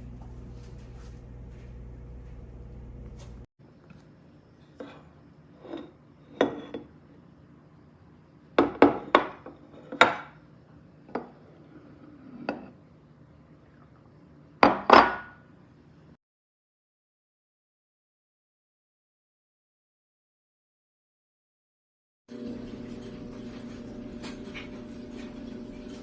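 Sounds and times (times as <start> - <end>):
glass containers clinking: 4.6 - 7.0, 8.6 - 10.4, 14.6 - 15.4.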